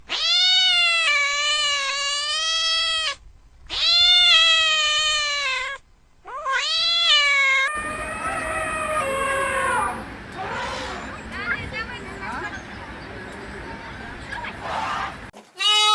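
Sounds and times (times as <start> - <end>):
cat meowing: 3.7 - 9.9
noisier sound: 7.7 - 15.3.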